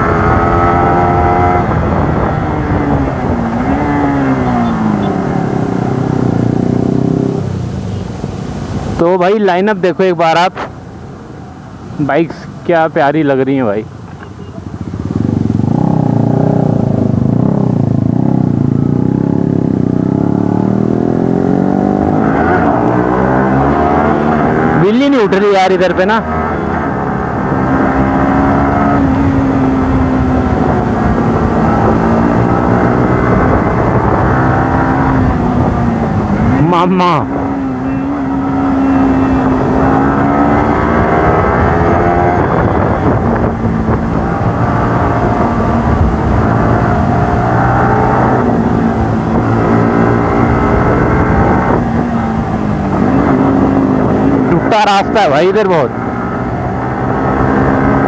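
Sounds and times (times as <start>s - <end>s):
wind buffeting microphone: 0.0s - 9.0s, 26.3s - 36.6s, 37.2s - 54.5s
motorcycle engine running: 14.0s - 22.3s, 26.2s - 58.0s.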